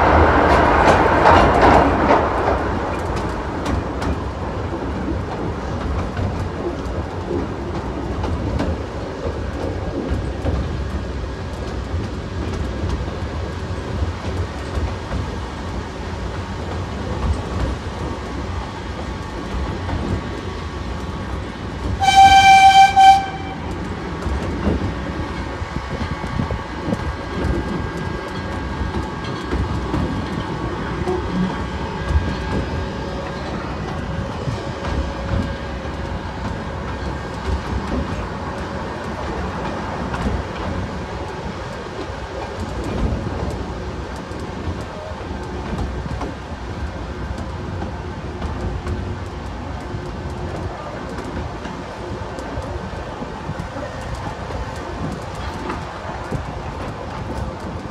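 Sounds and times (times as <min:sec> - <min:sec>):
train rumble and rail clatter: 0:00.0 - 0:57.9
train whistle: 0:22.0 - 0:23.8.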